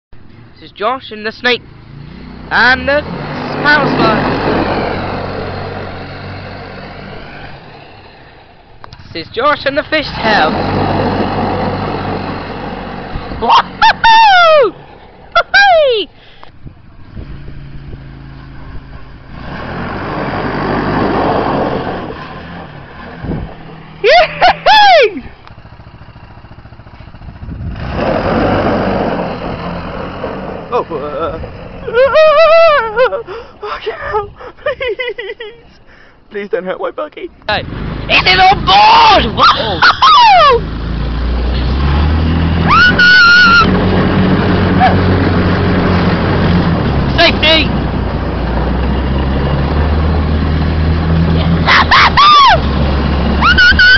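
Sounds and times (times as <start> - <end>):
buggy engine humming: 0.2 - 53.9
broad rushing noise: 2.0 - 16.2
high-pitched whoop: 13.8 - 14.8, 15.4 - 16.1, 24.0 - 25.2, 31.9 - 33.0, 38.8 - 40.6, 42.6 - 43.8, 51.6 - 52.7, 53.4 - 53.9.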